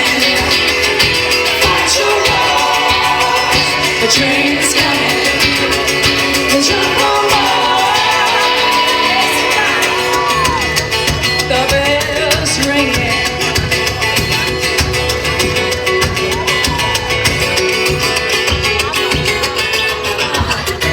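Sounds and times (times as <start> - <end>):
person singing without words: 0.0 - 13.4
live band music: 0.0 - 20.9.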